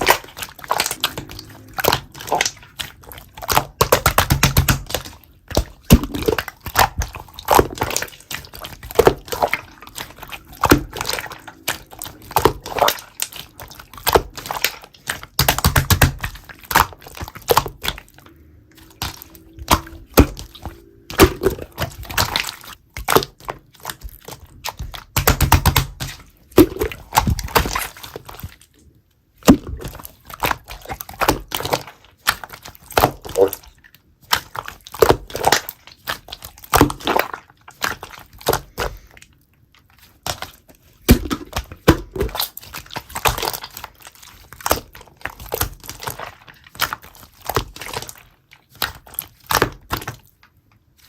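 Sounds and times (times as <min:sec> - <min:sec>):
air bubbles popping: 0:00.0 - 0:28.5
slime squeezed by hand: 0:00.0 - 0:28.8.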